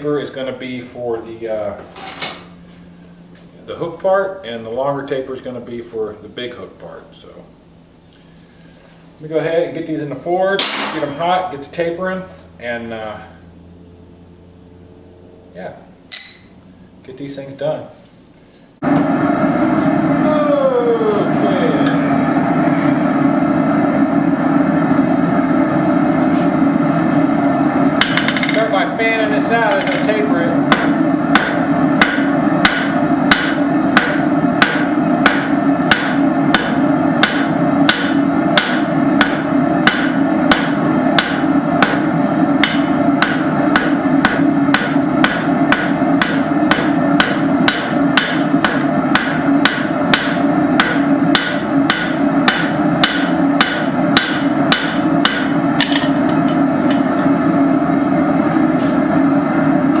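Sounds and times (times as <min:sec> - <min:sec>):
steady hum: 0:00.0 - 1:00.0
hammer striking hot steel on anvil: 0:16.1 - 0:16.6, 0:28.0 - 0:28.8, 0:29.5 - 0:57.4.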